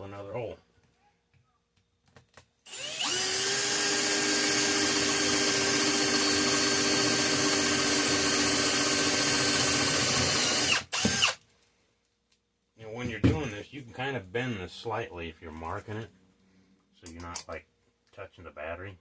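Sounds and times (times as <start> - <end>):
electric drill boring metal: 2.7 - 11.4.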